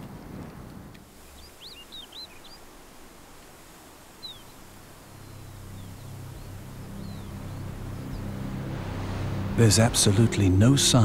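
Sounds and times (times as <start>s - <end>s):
faint outdoor background noise: 0.0s - 11.0s
high bird chirps: 1.2s - 2.7s, 4.1s - 8.5s.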